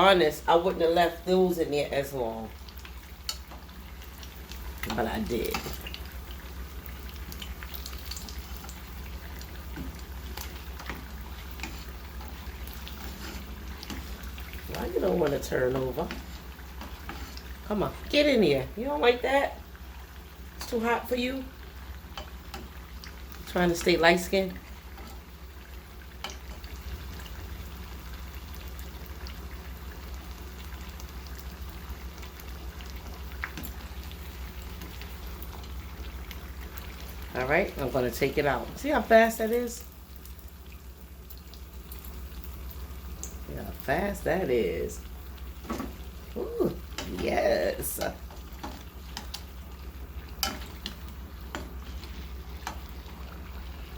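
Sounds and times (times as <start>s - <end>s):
steady low hum: 0.0s - 28.9s
spring rolls sizzling in hot oil: 0.0s - 53.9s
oil crackling and popping: 2.5s - 18.2s, 24.6s - 37.9s, 39.5s - 53.9s.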